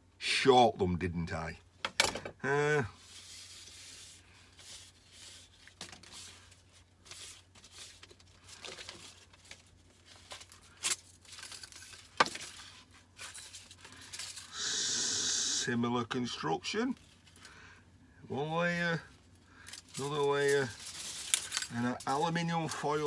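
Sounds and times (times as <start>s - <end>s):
foil and paper crinkling and tearing: 2.9s - 14.6s, 16.7s - 17.6s, 18.7s - 23.0s
loud hiss: 14.5s - 15.8s.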